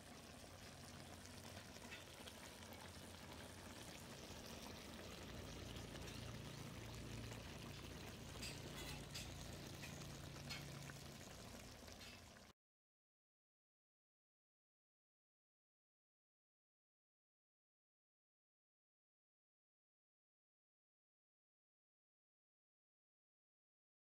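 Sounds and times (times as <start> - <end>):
food simmering with bubbling hiss: 0.0 - 12.6.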